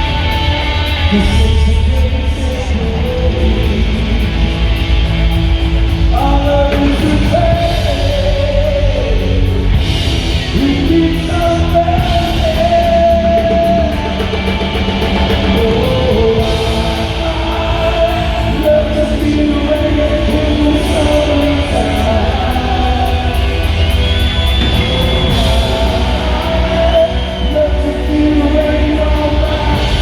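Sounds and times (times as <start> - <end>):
rock band playing live: 0.0 - 30.0
person singing long held notes: 6.1 - 30.0.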